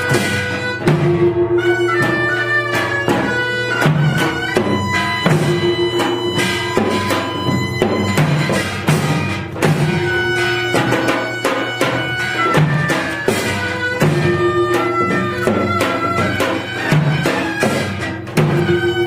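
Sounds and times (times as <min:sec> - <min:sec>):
drum strokes: 0:00.0 - 0:19.0
wind instrument held notes: 0:00.0 - 0:19.0.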